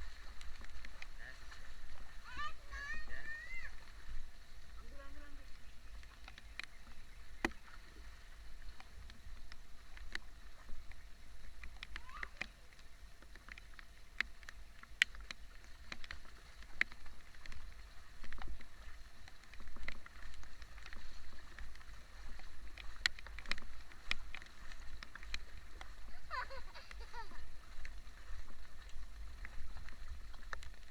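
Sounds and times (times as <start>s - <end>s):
raindrops ticking: 0.0s - 30.9s
rainfall hiss: 20.0s - 29.6s.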